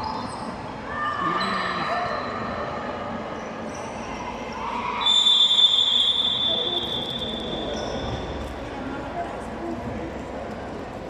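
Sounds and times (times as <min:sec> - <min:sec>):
whistle long blast: 0:05.0 - 0:07.8.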